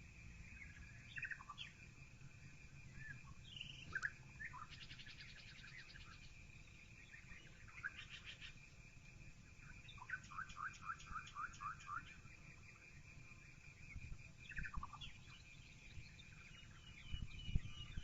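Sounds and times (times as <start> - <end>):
songbirds chirping faintly: 0.0 - 18.0
bird trill: 9.9 - 12.2, 14.5 - 18.0.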